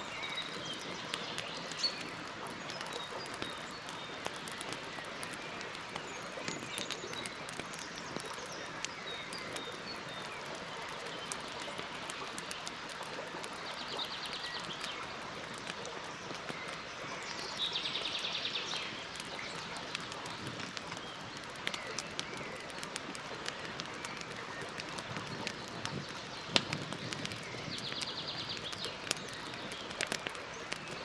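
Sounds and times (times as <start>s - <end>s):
campfire crackling and popping: 0.0s - 31.0s.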